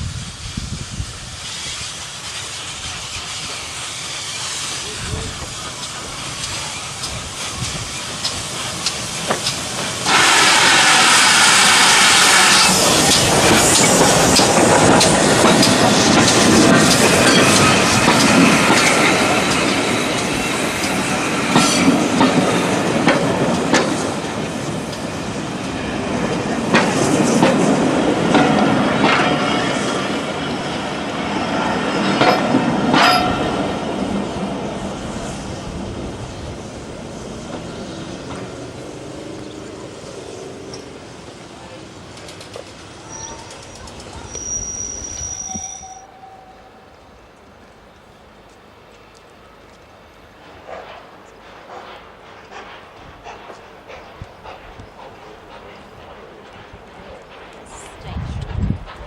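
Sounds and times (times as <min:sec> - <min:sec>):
loud hiss: 0:00.0 - 0:32.0
train wheels clicking on rails: 0:00.0 - 0:46.0, 0:47.2 - 0:59.0
train rumbling: 0:00.0 - 0:59.0.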